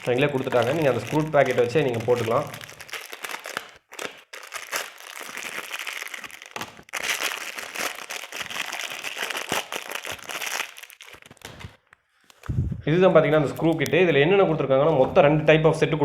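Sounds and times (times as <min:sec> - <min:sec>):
plastic packet crinkling: 0:00.0 - 0:12.5.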